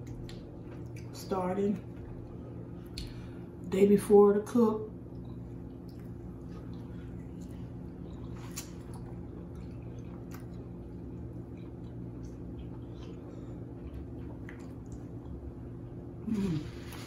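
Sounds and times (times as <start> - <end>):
wet squishy chewing: 0.0 - 1.2, 5.0 - 16.0
steady low hum: 0.0 - 17.0.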